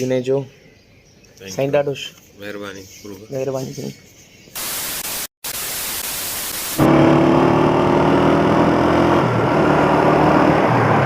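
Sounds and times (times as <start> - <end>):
static-like hiss: 4.6 - 6.8.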